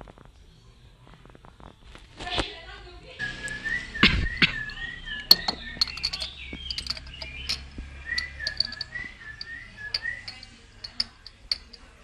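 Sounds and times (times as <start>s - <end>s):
warbling bird whistle: 3.2s - 10.6s
small birds chirping: 3.2s - 12.0s.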